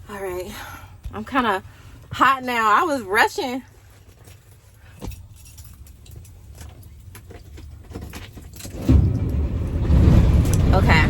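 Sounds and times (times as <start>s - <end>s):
keys jangling: 4.2s - 8.9s
diesel engine starting and running: 8.5s - 11.0s.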